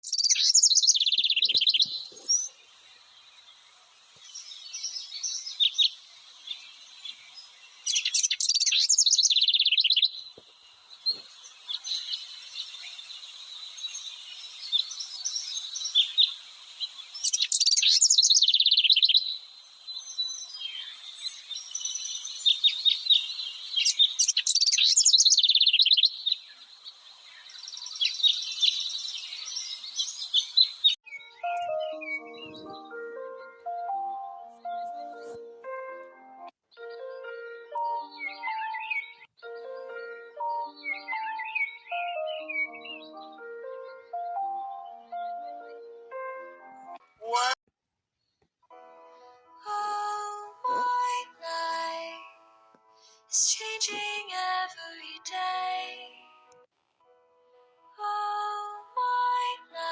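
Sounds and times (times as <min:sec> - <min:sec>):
songbirds chirping: 0:00.0 - 0:47.6
loud rapid bird trills: 0:07.9 - 0:10.2.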